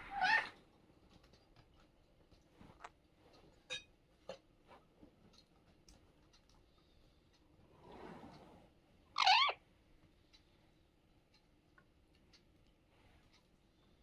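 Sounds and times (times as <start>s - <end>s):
faint scattered clicks: 5.2s - 7.5s.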